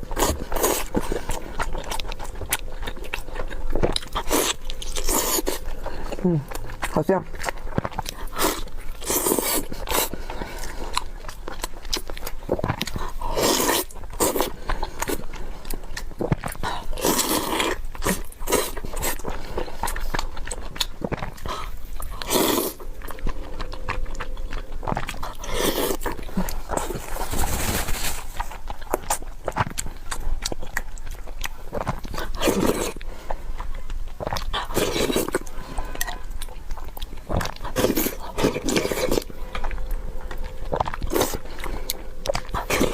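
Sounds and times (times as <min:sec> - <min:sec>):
chewing and lip-smacking: 0:00.0 - 0:42.9.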